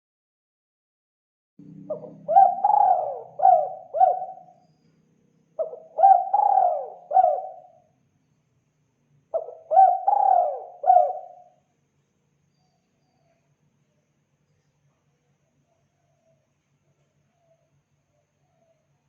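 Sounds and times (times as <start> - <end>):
dove cooing: 1.8 - 4.5, 5.6 - 7.8, 9.3 - 11.5.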